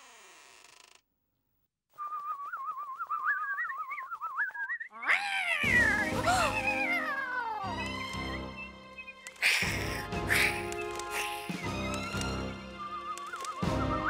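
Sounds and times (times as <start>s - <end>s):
cartoon cat yowling: 5.0s - 7.8s
background music: 5.6s - 14.0s.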